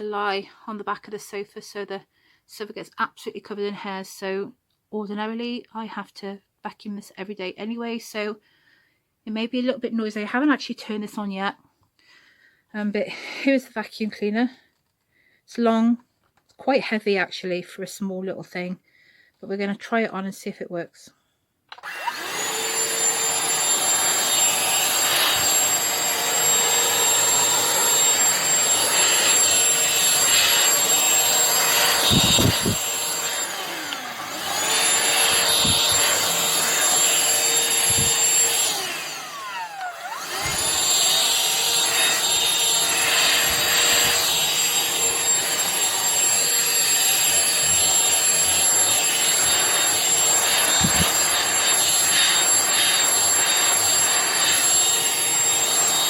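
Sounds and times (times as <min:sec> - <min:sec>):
handheld vacuum cleaner whine: 0:21.7 - 0:56.0.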